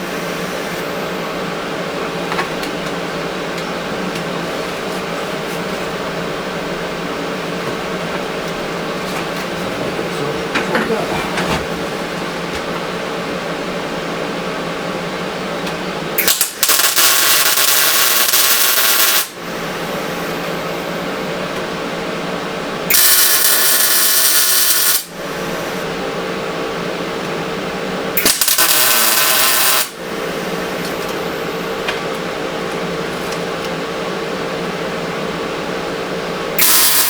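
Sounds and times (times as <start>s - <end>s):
machine hum: 0.0s - 37.0s
welder arc crackling hiss: 16.2s - 19.4s, 22.9s - 25.7s, 28.2s - 31.2s, 36.6s - 37.0s.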